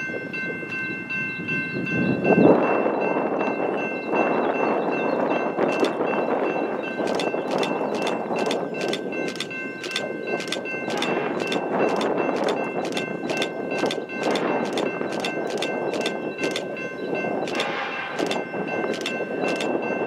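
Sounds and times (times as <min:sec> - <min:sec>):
train passing rumble: 0:00.0 - 0:20.0
sharp regular clicks: 0:05.7 - 0:06.0, 0:07.0 - 0:16.8, 0:17.5 - 0:19.8.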